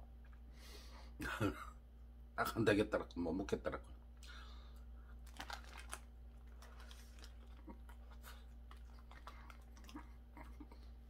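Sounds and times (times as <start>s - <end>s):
man chewing: 6.4s - 11.0s.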